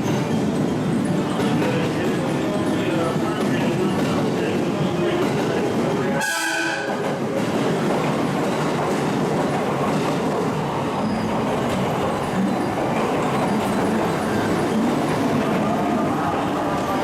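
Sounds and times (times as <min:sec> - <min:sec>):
train wheels clattering: 0:00.0 - 0:17.0
train horn blast: 0:06.2 - 0:07.0.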